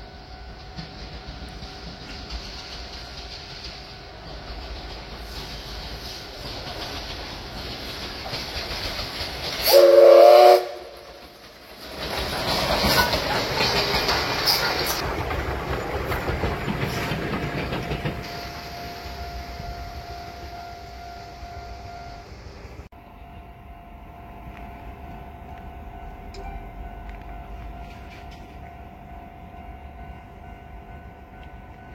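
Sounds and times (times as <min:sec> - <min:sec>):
train clattering on rails: 0:00.0 - 0:20.7, 0:24.4 - 0:31.9
wheels rumbling on track: 0:00.0 - 0:31.9
train horn blast: 0:09.6 - 0:11.0.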